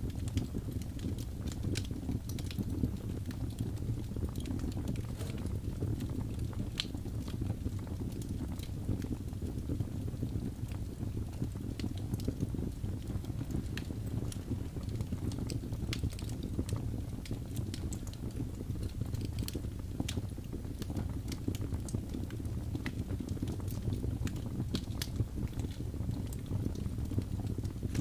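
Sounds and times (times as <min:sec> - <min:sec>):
fire crackles and pops: 0:00.0 - 0:28.0
wood fire rumbling: 0:00.0 - 0:28.0.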